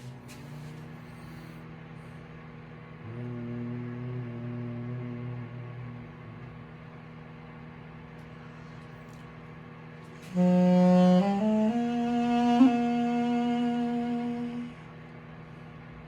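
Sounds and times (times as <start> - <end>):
microwave oven humming: 0.0 - 16.0
duduk playing held notes: 10.2 - 14.8.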